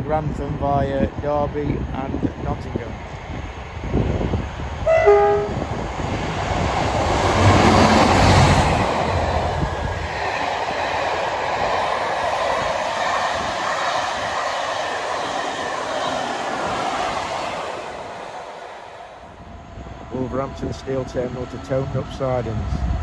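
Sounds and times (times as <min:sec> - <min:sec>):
train passing on rails: 0:00.0 - 0:23.0
two-tone train horn: 0:04.9 - 0:05.8.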